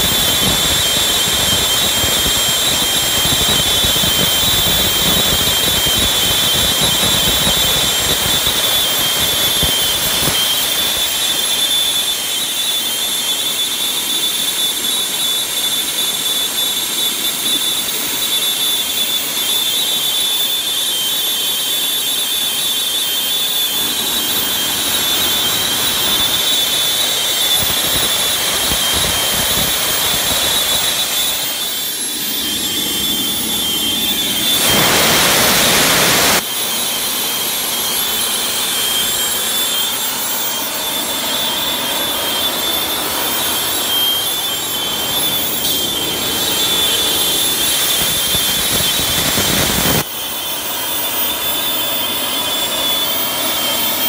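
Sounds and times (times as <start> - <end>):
jet engine whine: 0.0 - 54.0
rushing noise: 23.7 - 36.5, 37.4 - 54.0.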